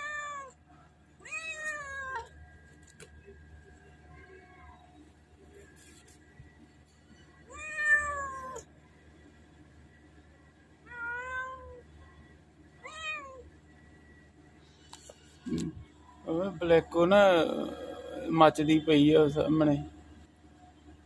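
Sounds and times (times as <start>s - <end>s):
cat meowing: 0.0s - 0.6s, 1.2s - 2.3s, 7.5s - 8.6s, 10.9s - 11.8s, 12.8s - 13.4s.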